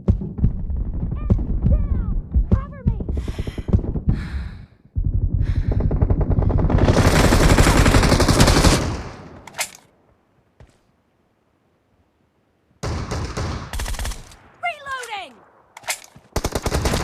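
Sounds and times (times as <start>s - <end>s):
video game automatic gunfire: 5.0s - 9.3s, 16.4s - 17.0s.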